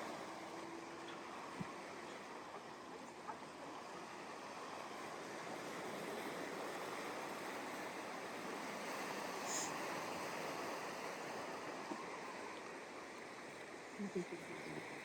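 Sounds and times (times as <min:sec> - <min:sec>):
ocean waves breaking on beach: 0:00.0 - 0:15.0.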